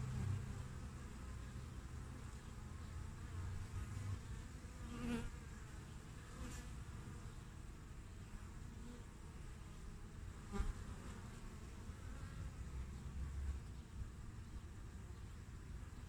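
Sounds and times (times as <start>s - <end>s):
single bee flying past: 0.0s - 7.4s, 10.3s - 13.6s
bees humming at hive: 0.0s - 16.0s.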